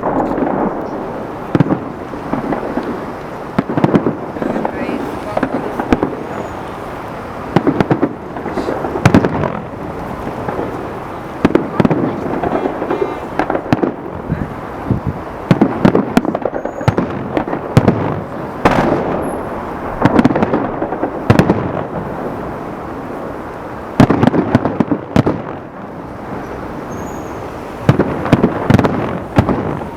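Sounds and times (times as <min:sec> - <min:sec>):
fireworks bangs with rumbling echo: 0:00.0 - 0:29.9.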